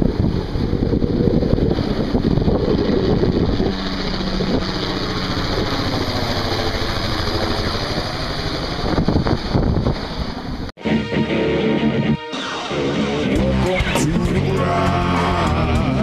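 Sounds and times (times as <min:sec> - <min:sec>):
helicopter engine and rotor drone: 0:00.0 - 0:10.7
wind buffeting microphone: 0:00.0 - 0:10.7.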